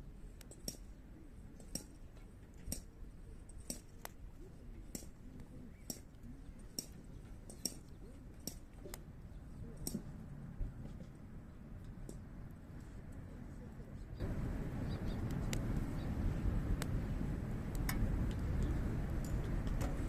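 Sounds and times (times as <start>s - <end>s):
low rumble of fire: 0.0s - 20.0s
campfire crackling and popping: 14.2s - 19.8s.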